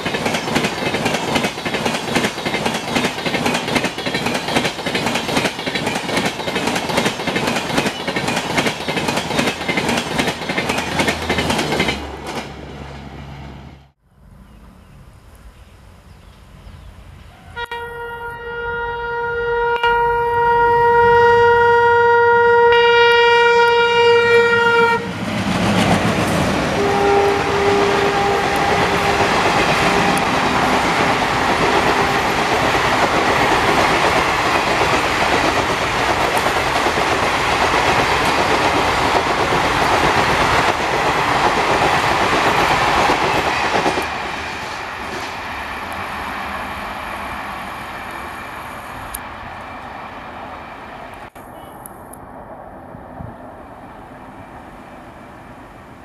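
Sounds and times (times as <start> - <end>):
train wheels on rails: 0.0 - 14.0, 23.7 - 56.0
locomotive horn: 17.4 - 25.2, 26.8 - 30.6.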